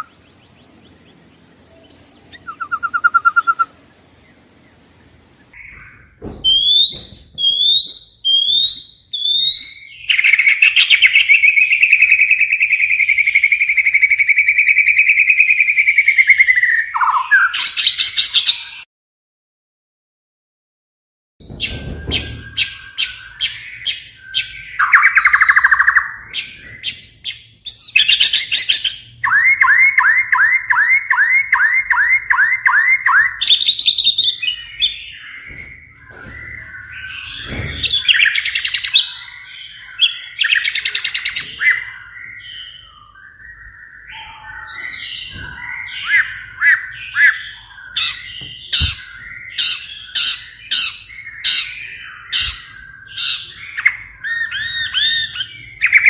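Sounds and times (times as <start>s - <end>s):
bird rising whistled notes: 1.8s - 3.8s.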